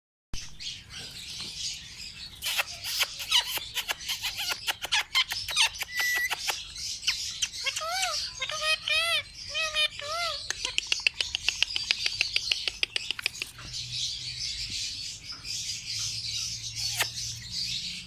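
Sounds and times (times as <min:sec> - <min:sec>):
parrot chirping and squawking: 0:00.6 - 0:13.8, 0:15.2 - 0:18.0.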